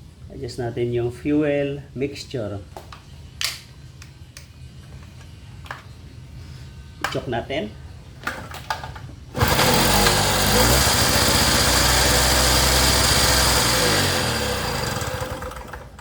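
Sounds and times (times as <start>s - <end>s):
small generator engine starting: 9.3s - 16.0s.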